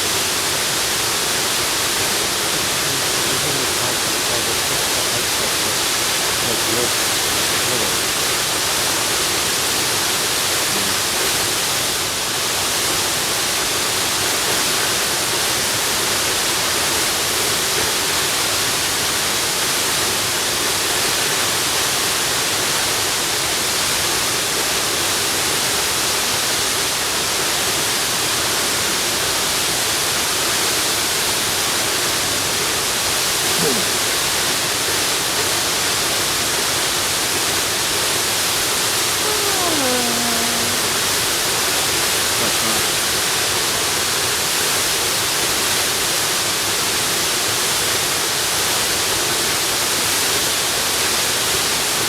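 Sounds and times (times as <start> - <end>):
waterfall rushing: 0.0 - 19.6.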